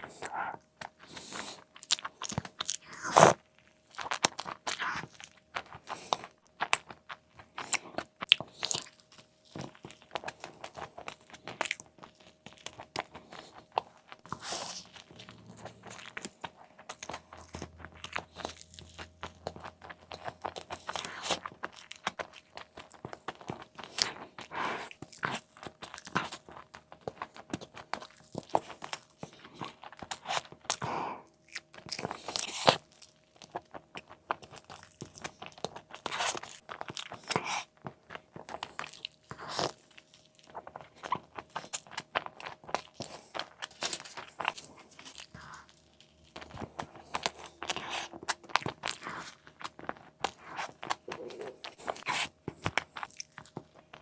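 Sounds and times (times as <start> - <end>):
wet chewing: 0.0 - 54.0.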